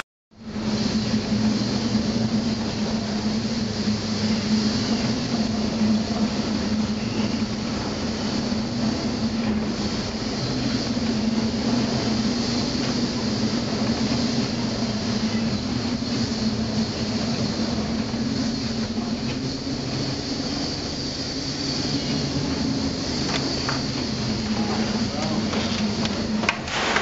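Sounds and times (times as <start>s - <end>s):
ship engine drone: 0.0s - 27.0s
steady hiss: 0.4s - 27.0s.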